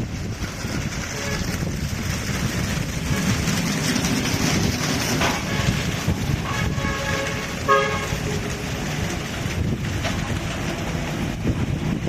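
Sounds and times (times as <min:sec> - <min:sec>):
car wash machine rushing: 0:00.0 - 0:12.0
short horn-like tones: 0:05.4 - 0:08.4.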